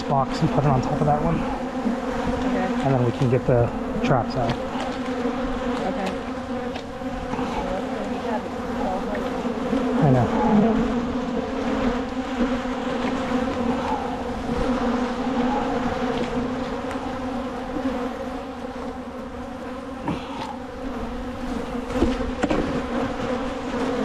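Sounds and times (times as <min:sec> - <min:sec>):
honeybees buzzing: 0:00.0 - 0:24.0.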